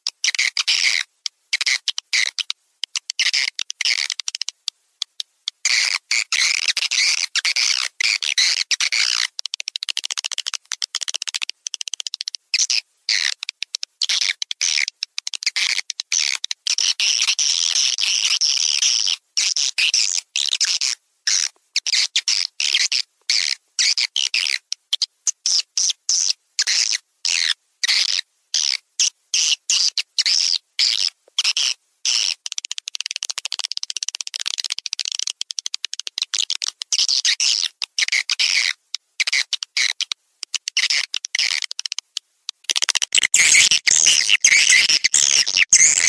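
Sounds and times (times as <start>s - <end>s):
high-pitched twittering bird chirps: 43.1s - 46.0s.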